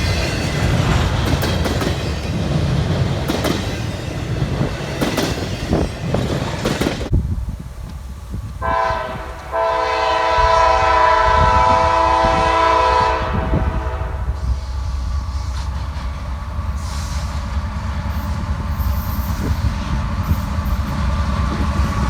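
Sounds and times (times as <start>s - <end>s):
moving train rumble: 0.0s - 22.0s
railroad cars clattering: 0.0s - 22.0s
locomotive air horn: 8.6s - 14.7s.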